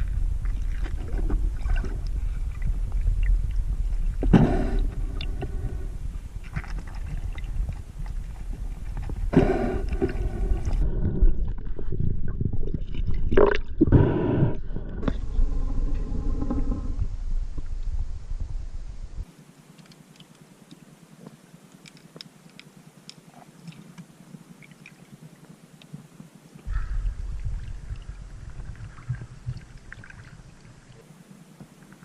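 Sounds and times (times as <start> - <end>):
water gurgling bursts: 0.0 - 17.0
muffled underwater rumble: 0.0 - 19.3, 22.8 - 32.0.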